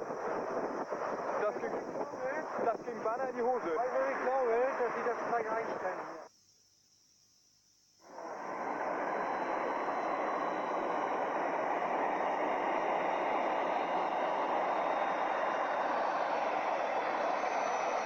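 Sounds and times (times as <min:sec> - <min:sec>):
faint high whine: 0:00.0 - 0:18.0
aircraft engine rushing: 0:08.2 - 0:18.0.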